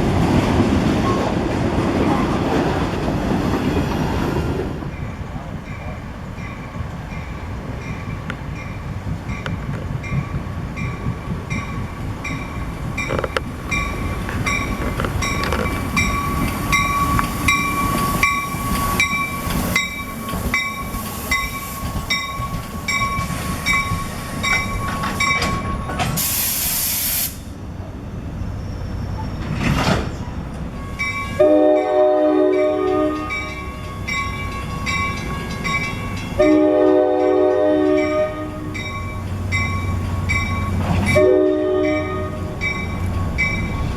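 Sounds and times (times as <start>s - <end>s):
crossing bell dinging: 4.9s - 26.2s, 30.7s - 43.9s
train wheels clattering: 5.6s - 26.8s
short loud hiss: 26.2s - 27.6s
train horn blasts: 30.8s - 33.9s, 36.4s - 38.8s, 41.1s - 42.6s.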